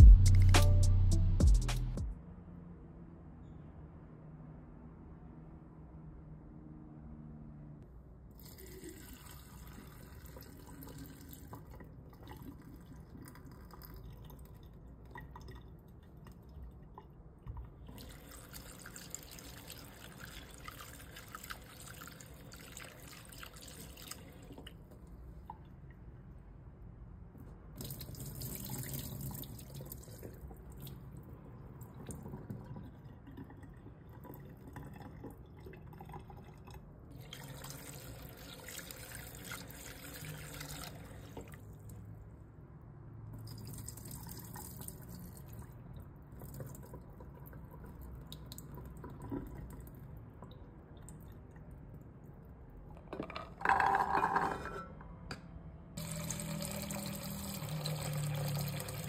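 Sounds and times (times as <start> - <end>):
water dripping and trickling: 8.4 - 24.8, 27.8 - 42.0, 43.4 - 52.5, 56.0 - 59.0.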